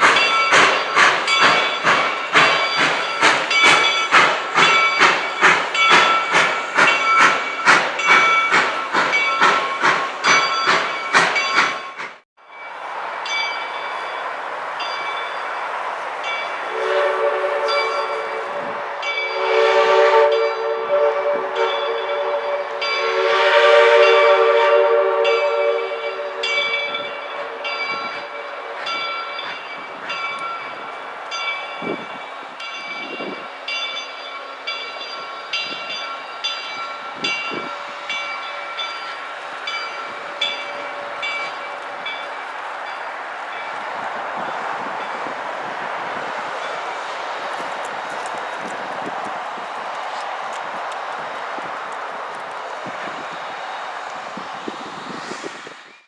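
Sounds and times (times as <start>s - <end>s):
wheels clicking over rail joints: 0.0s - 12.2s
train horn blasts: 16.7s - 29.0s.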